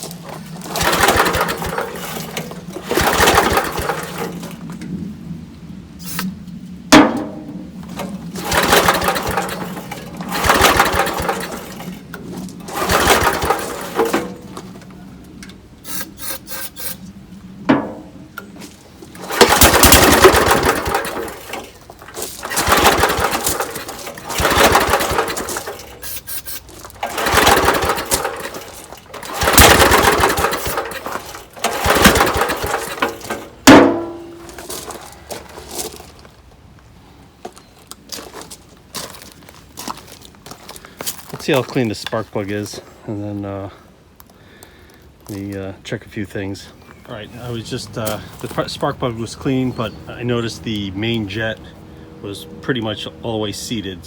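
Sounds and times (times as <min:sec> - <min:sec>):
small engine cranking: 0:00.0 - 0:04.7, 0:06.0 - 0:06.3, 0:08.0 - 0:17.2, 0:19.0 - 0:36.0
engine sharp pops: 0:00.0 - 0:05.0, 0:06.0 - 0:35.5.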